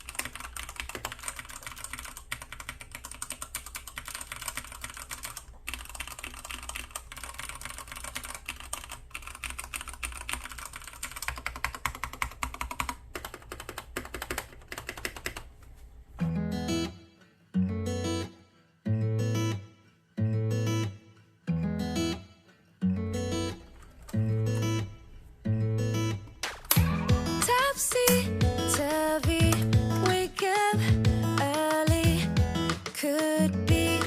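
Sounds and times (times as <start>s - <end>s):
mechanical keyboard typing: 0.0s - 15.5s
strummed acoustic guitar music: 16.2s - 34.0s.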